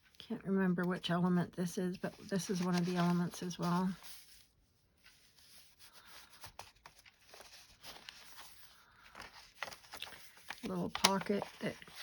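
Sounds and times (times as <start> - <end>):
paper rustling: 1.9 - 12.0
soft taps of paper and card: 9.2 - 12.0.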